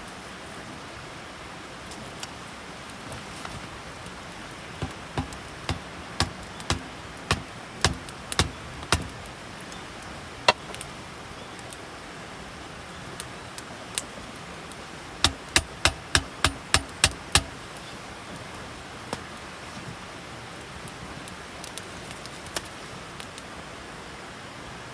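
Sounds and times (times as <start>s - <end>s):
sharp knocks: 4.8s - 9.3s, 10.5s - 10.8s, 15.2s - 17.6s.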